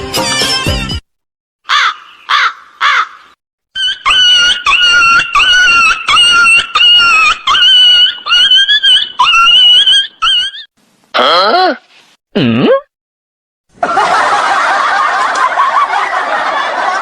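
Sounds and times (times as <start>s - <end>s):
animal calling: 1.7s - 11.6s.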